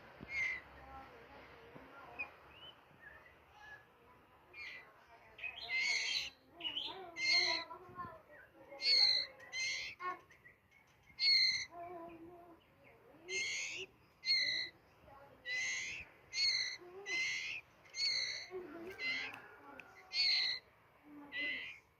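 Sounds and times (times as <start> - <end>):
bird whistling song: 0.2 - 0.8, 2.2 - 3.9, 4.6 - 7.7, 8.3 - 11.7, 13.3 - 19.4, 20.1 - 20.7.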